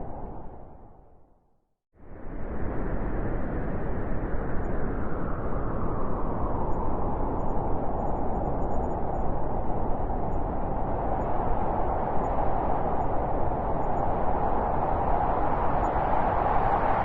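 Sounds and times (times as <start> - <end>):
blizzard wind howling: 0.0 - 1.3, 2.0 - 17.0.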